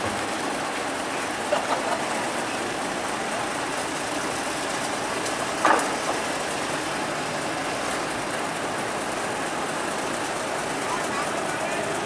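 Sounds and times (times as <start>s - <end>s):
water rushing through sluice gate: 0.0s - 12.0s.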